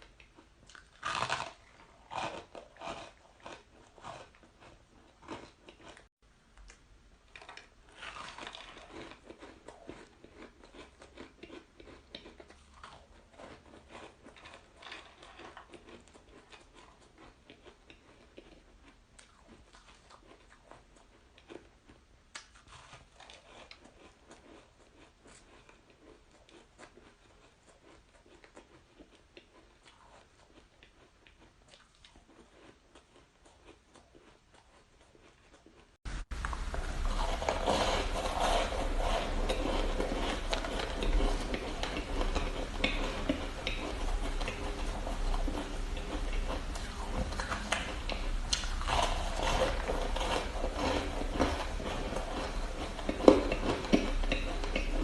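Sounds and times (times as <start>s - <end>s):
crunching and chewing shaved ice: 0.0s - 6.1s, 7.3s - 55.0s.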